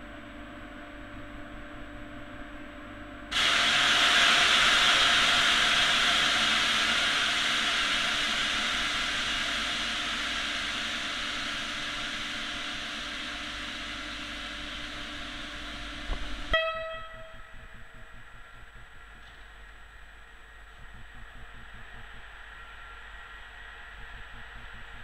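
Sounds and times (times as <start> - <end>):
steady air hiss: 3.3 - 16.6
locomotive horn: 16.5 - 17.5.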